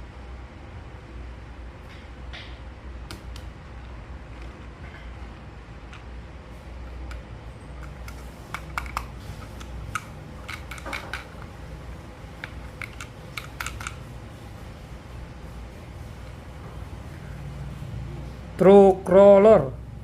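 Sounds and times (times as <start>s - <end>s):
steady low hum: 0.0s - 20.0s
plastic toy parts clicking: 7.8s - 11.5s, 12.4s - 14.0s.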